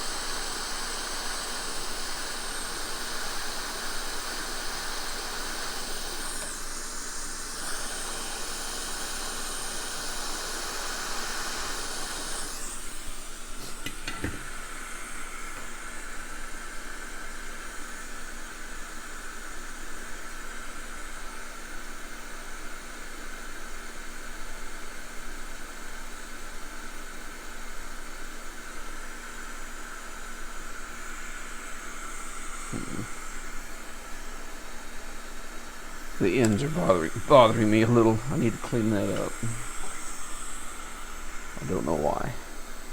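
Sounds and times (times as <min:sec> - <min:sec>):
hot air blower hissing: 0:00.0 - 0:42.9.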